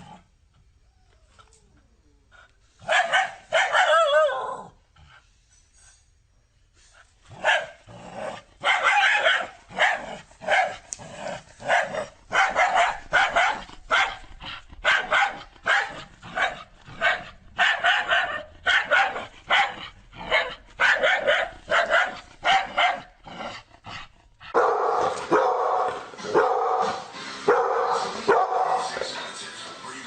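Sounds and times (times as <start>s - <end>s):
dog barking: 2.8s - 4.6s, 7.3s - 7.8s, 8.6s - 10.9s, 11.6s - 23.2s, 24.6s - 29.0s
deeper barking: 2.8s - 4.8s, 7.3s - 29.2s.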